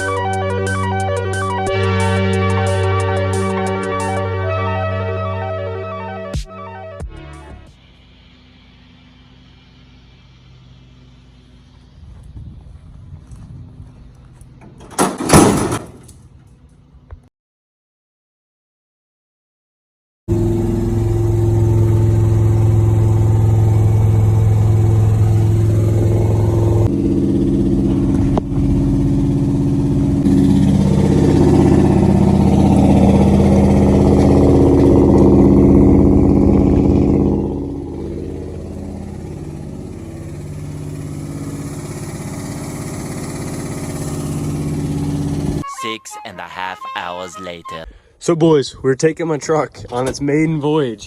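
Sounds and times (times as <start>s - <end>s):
truck engine running while driving: 20.3s - 45.6s.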